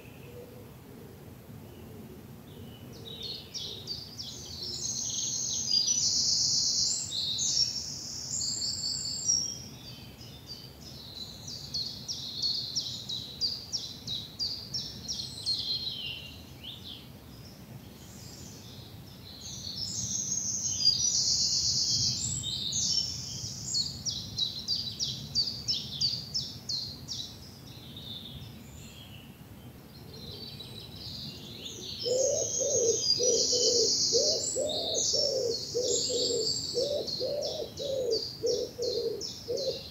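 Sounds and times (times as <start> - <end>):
bird chirps: 30.0 - 39.9
bird trilling: 32.0 - 39.9
low cooing: 32.0 - 39.9.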